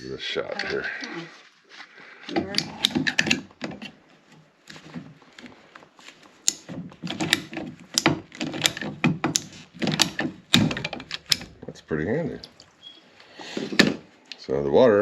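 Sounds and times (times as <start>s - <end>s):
pipe cutter clicking: 6.5s - 11.6s.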